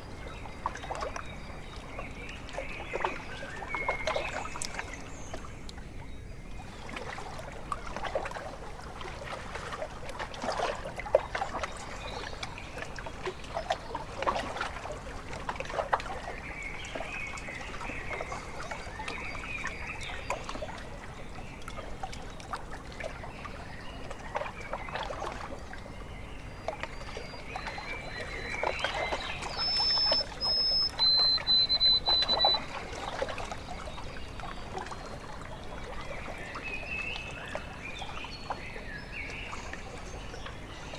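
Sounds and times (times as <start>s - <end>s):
small waves lapping and splashing: 0.0s - 40.9s
birds calling: 27.5s - 34.8s
high whistled bird notes: 29.1s - 32.7s.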